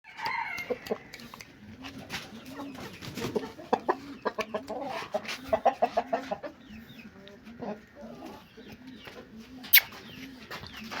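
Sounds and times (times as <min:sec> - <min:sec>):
rooster clucking: 0:00.1 - 0:06.8.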